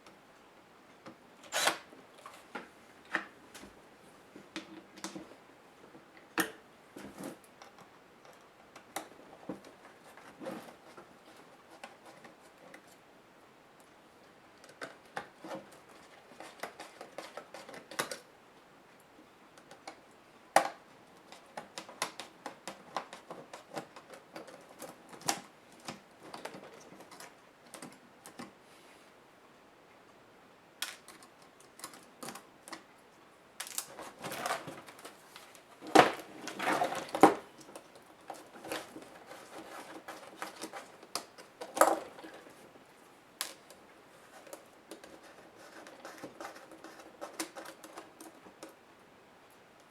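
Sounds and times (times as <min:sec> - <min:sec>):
laptop parts clicking and rattling: 0:35.8 - 0:42.6, 0:44.4 - 0:48.8.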